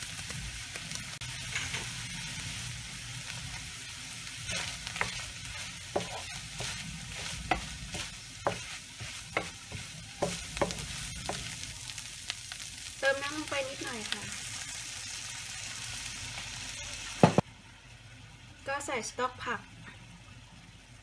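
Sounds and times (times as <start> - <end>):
ham and onion sizzling in pan: 0.0 - 21.0
wooden spoon scraping pan: 4.4 - 11.6.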